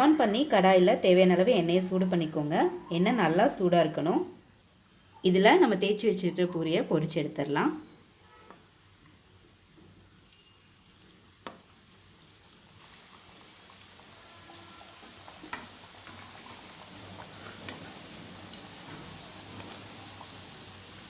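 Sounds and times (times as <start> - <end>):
food sizzling in hot oil: 8.7 - 21.0
oil crackling: 10.2 - 21.0.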